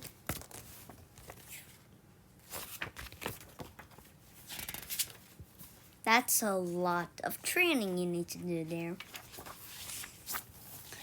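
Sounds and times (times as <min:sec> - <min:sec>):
paper pages rustling: 0:00.0 - 0:01.8, 0:02.4 - 0:05.9, 0:08.9 - 0:11.0.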